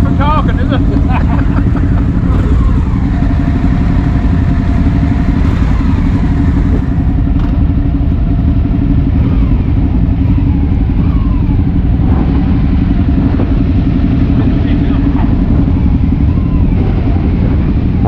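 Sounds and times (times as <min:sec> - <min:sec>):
loud low rumble: 0:00.0 - 0:18.0
motorcycle engine running: 0:00.0 - 0:18.0.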